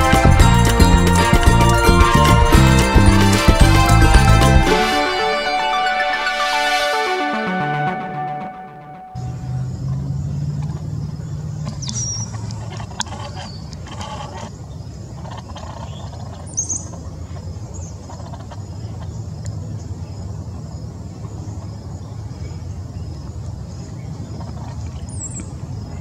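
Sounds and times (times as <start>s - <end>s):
bird chirps: 11.0s - 12.4s.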